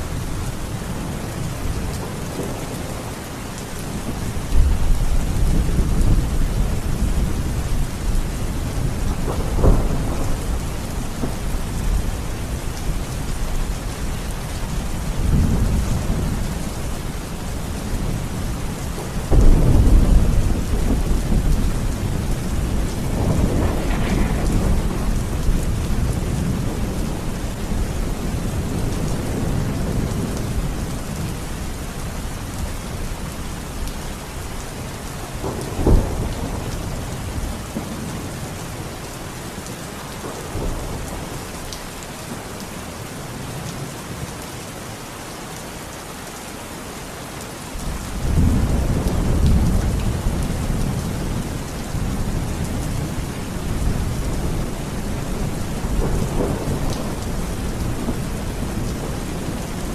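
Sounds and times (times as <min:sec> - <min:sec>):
heavy rain: 0:00.0 - 0:59.9
thunder rumbling: 0:03.8 - 0:31.5, 0:35.3 - 0:38.3, 0:47.8 - 0:59.9.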